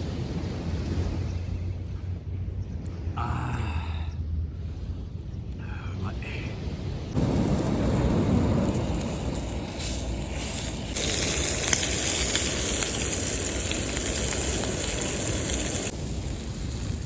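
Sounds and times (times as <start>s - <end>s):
low rumbling background noise: 0.0s - 17.0s
food sizzling: 7.2s - 17.0s.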